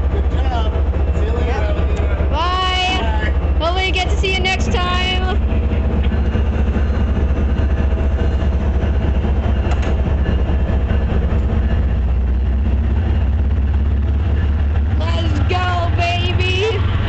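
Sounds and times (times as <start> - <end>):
locomotive diesel engine rumbling: 0.0 - 17.0.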